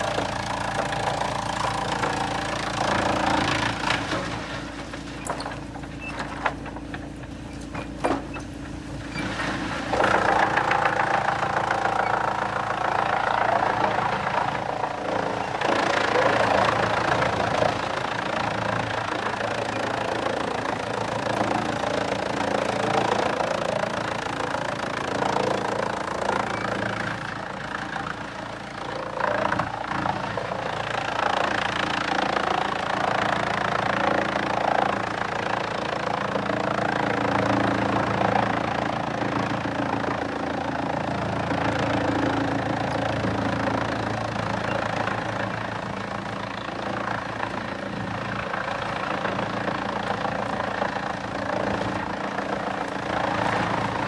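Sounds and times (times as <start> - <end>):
machinery grinding: 0.0 - 20.7
engine running: 0.0 - 54.0.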